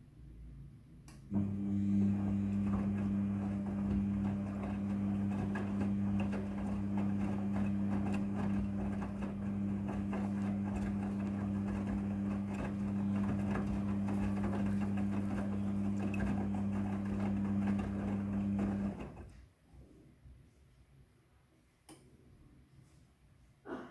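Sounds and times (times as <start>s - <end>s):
washing machine humming and rattling: 1.3s - 19.4s.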